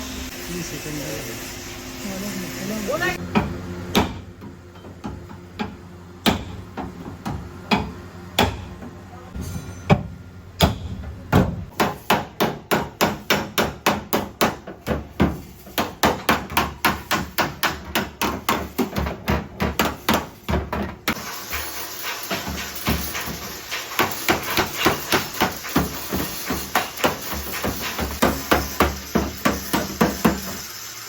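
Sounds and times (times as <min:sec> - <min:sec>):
hiss: 0:21.1 - 0:31.0.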